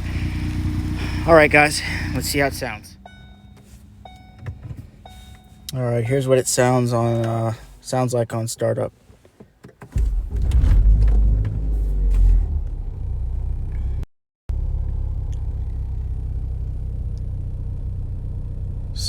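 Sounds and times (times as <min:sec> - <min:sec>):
car engine starting and idling: 0:00.0 - 0:19.0.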